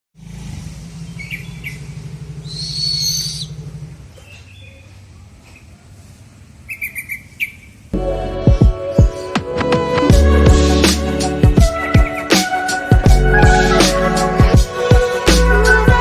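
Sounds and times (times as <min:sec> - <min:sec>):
owl calling: 0:01.1 - 0:03.6, 0:06.7 - 0:07.8, 0:11.7 - 0:14.4.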